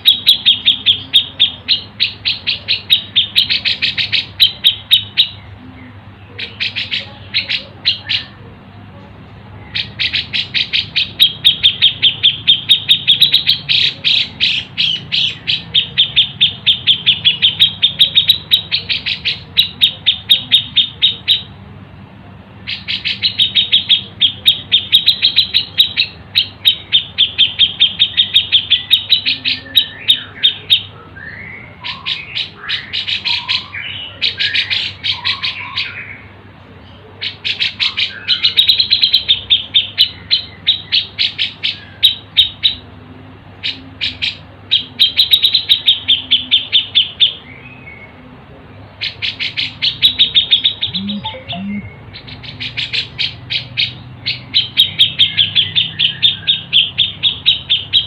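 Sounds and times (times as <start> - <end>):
high bird chirps: 0.0 - 8.4, 49.0 - 58.0
gliding bird notes: 50.8 - 52.1.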